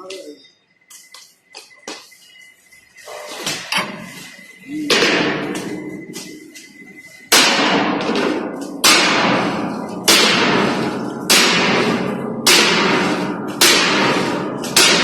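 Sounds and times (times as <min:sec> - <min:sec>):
hammer striking steel plate: 0:04.9 - 0:15.0.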